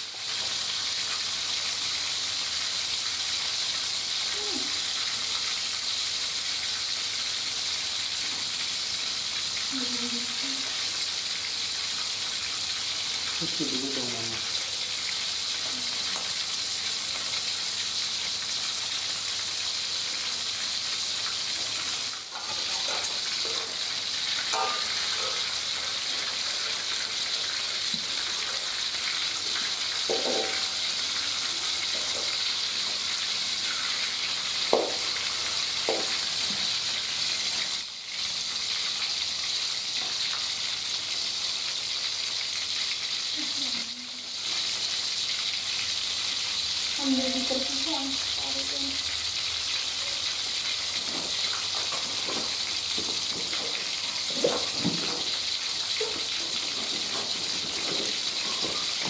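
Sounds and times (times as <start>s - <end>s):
chicken sizzling in hot oil: 0.0s - 59.0s
spatula knocking against pan: 24.5s - 25.2s, 30.1s - 30.7s.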